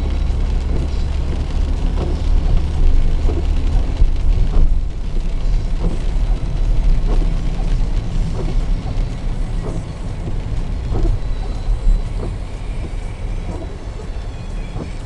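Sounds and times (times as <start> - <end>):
car interior road rumble: 0.0 - 15.0
windscreen wipers swishing: 0.0 - 15.0.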